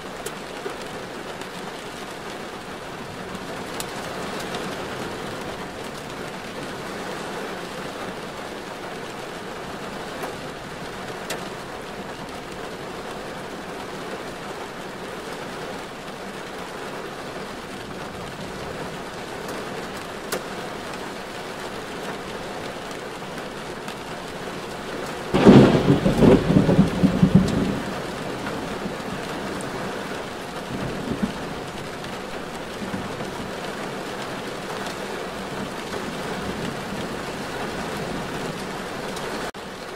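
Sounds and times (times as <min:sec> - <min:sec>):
rain hissing on car: 0:00.0 - 0:39.9.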